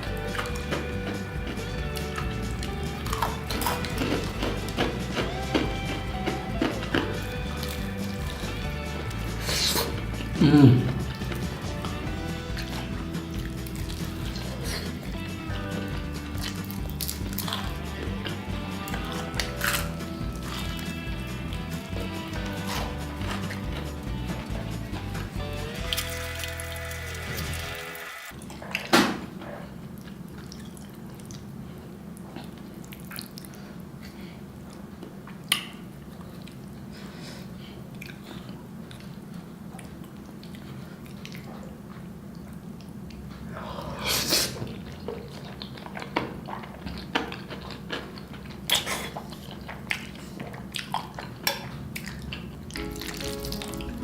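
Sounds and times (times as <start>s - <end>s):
person chewing: 0.0s - 27.8s, 29.5s - 54.0s
steady low hum: 0.0s - 27.8s.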